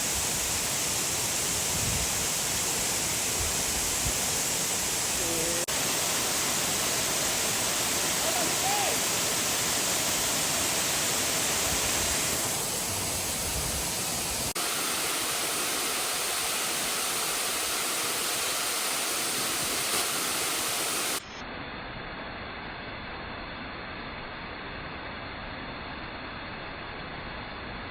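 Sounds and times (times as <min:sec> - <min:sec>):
waterfall roaring: 0:04.5 - 0:21.2.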